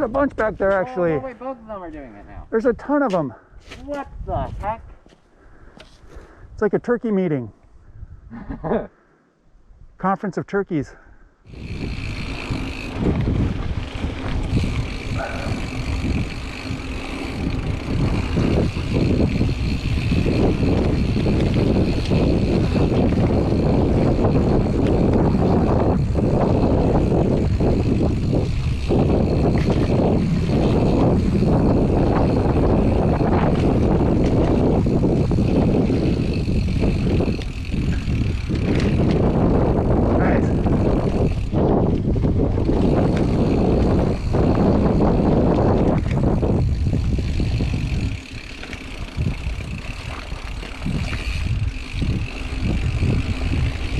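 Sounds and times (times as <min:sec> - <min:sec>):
wind buffeting microphone: 0:02.3 - 0:06.6, 0:07.7 - 0:08.8, 0:11.4 - 0:53.9
bike tyres rumbling on trail: 0:11.5 - 0:53.9.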